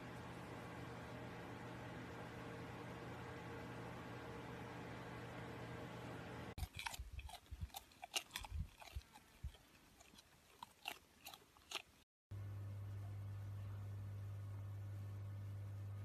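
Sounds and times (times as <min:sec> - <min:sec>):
steady low hum: 0:00.0 - 0:09.8, 0:12.3 - 0:16.0
crunching clicks and snaps: 0:06.6 - 0:12.0.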